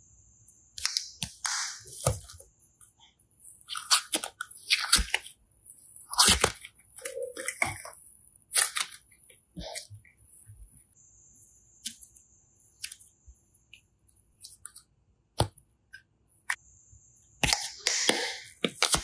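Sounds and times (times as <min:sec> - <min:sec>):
slime crackling and squishing: 0:03.2 - 0:10.9.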